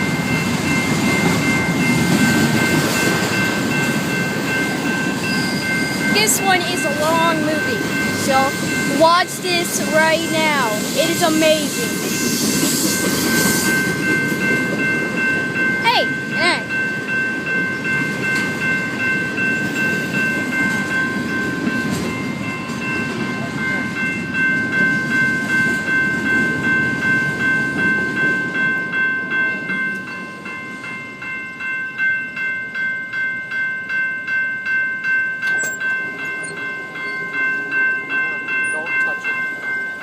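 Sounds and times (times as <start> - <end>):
high ringing tone: 0.0 - 40.0
regular clacking of train: 0.0 - 40.0
train cars rumbling: 0.0 - 40.0.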